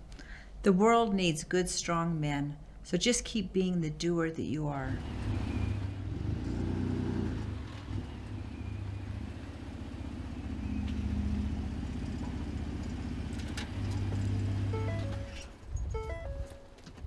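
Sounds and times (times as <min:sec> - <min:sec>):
pickup truck engine running: 0:05.0 - 0:16.4.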